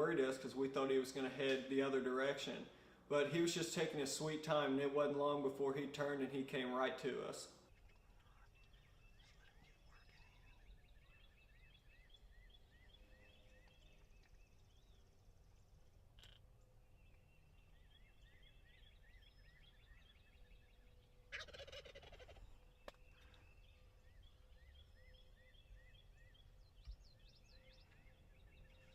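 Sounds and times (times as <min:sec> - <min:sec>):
small bird chirping: 0:07.7 - 0:28.9
turkey gobbling: 0:21.3 - 0:23.0.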